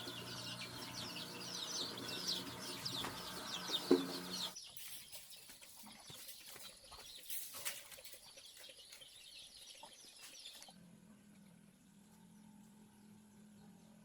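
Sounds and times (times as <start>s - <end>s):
chickens clucking: 0.0s - 4.6s
small birds chirping: 0.0s - 14.0s.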